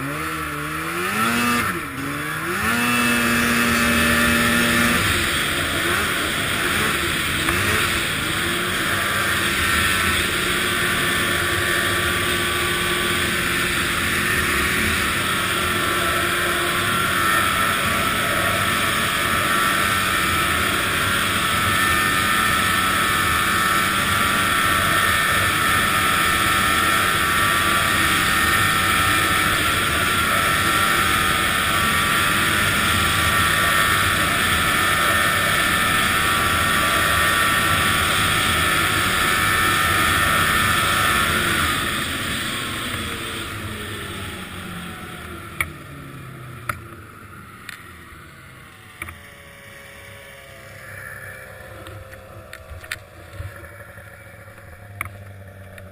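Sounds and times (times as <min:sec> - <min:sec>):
snowmobile engine running: 0:00.0 - 0:55.9.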